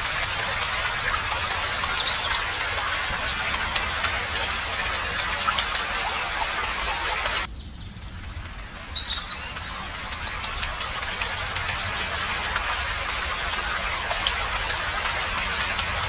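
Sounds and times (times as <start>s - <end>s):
small birds chirping: 0.0s - 16.0s
steady outdoor hiss: 0.0s - 16.0s.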